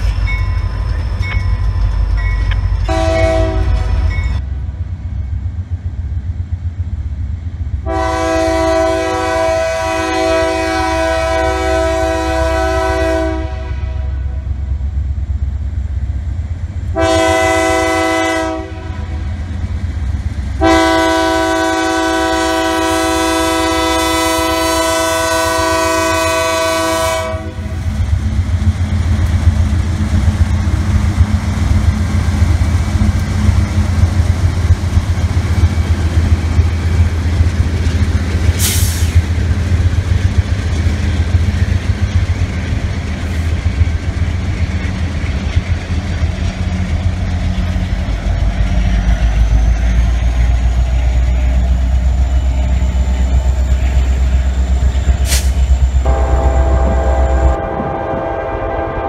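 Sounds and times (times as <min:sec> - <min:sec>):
train wheels rolling: 0:00.0 - 0:07.8, 0:14.6 - 0:59.0
diesel engine low rumble: 0:00.0 - 0:59.0
locomotive air horn blasts: 0:02.9 - 0:04.1, 0:07.8 - 0:14.4, 0:16.9 - 0:19.2, 0:20.6 - 0:27.7, 0:55.3 - 0:59.0.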